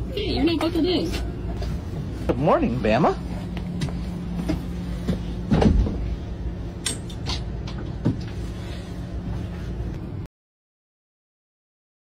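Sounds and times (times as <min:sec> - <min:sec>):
vehicle engine idling: 0:00.0 - 0:10.3
knocks and clunks: 0:03.8 - 0:06.2.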